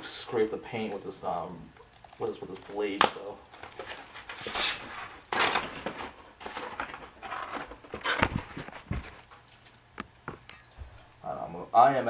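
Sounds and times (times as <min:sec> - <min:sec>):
plastic film rustling and crinkling: 0:02.2 - 0:09.9.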